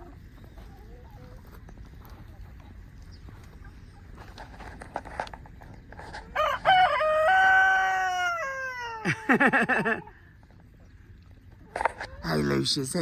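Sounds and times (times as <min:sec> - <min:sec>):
rooster crowing: 0:06.3 - 0:09.1.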